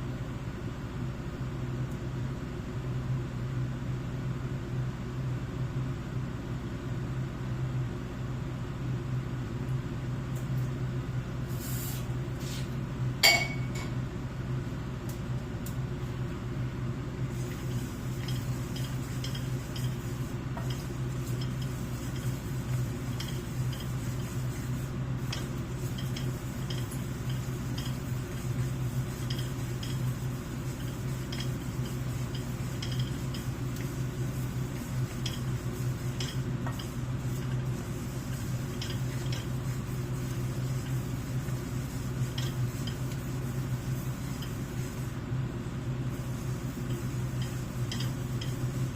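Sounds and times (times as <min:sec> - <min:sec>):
steady low hum: 0:00.0 - 0:48.9
kitchenware clinking: 0:13.2 - 0:13.9
sharp ringing clink: 0:13.2 - 0:13.9.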